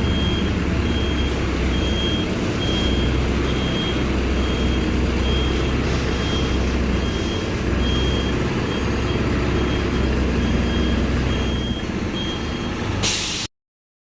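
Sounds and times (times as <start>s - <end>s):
reversing alarm beeps: 0.0s - 13.4s
diesel bus engine rumbling: 0.0s - 13.5s
air hiss burst: 13.0s - 13.5s.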